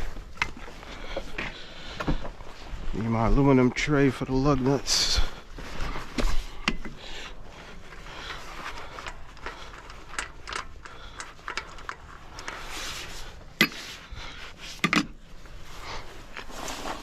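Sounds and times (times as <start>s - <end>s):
tools rustling and knocking: 5.8s - 15.3s.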